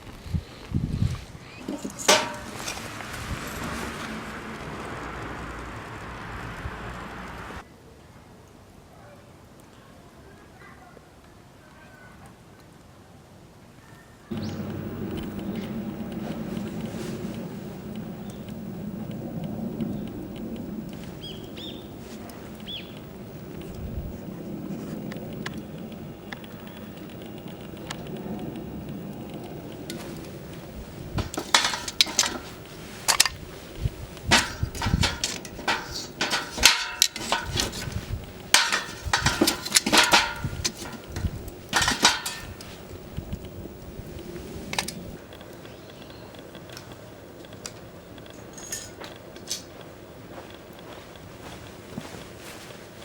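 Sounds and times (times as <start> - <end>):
low steady rush: 1.3 - 7.7, 14.3 - 53.0
tongs clanking on a metal pail: 1.6 - 3.0, 31.2 - 33.4, 34.3 - 42.9.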